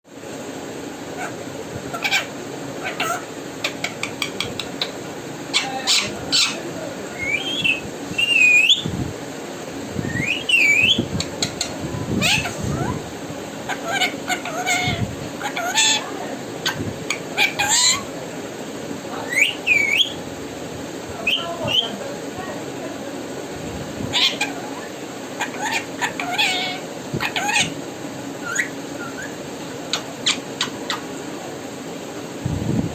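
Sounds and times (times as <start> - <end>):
parrot squawking and chirping: 1.1 - 8.9, 10.1 - 13.0, 13.6 - 18.1, 19.2 - 20.2, 21.2 - 22.0, 24.1 - 27.8, 28.4 - 31.2
parrot clicking: 3.7 - 5.0
parrot whistling: 5.5 - 8.9, 10.0 - 11.1, 19.3 - 20.2, 28.4 - 31.0.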